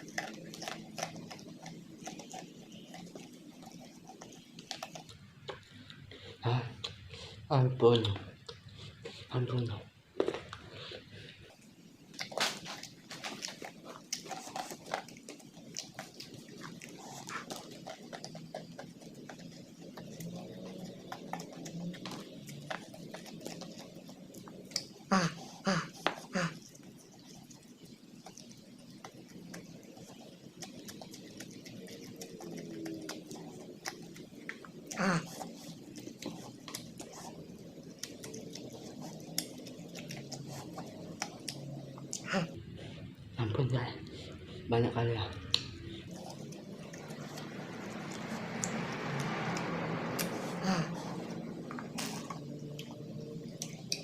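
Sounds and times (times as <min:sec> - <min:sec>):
person chewing: 0:00.0 - 0:43.3, 0:45.4 - 0:54.0
wet lip smacks and clicks: 0:12.1 - 0:25.0, 0:28.3 - 0:42.6, 0:45.4 - 0:50.5, 0:51.2 - 0:54.0.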